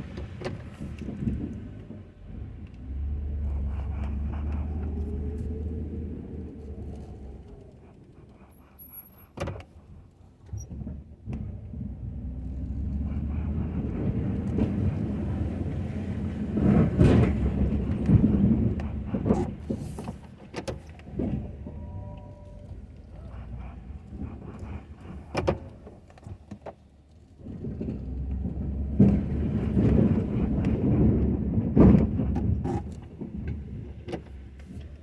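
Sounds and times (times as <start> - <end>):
pickup truck engine running: 0.0 - 26.5.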